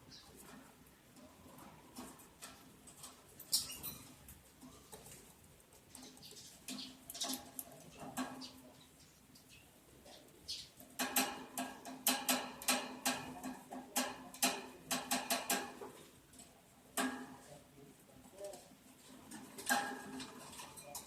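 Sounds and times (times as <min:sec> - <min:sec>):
lovebirds chirping: 0:00.0 - 0:00.5, 0:03.4 - 0:04.2, 0:05.8 - 0:11.0.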